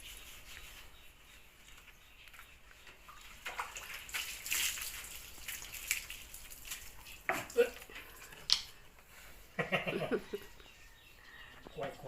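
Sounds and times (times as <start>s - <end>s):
water splashing: 3.1s - 7.9s.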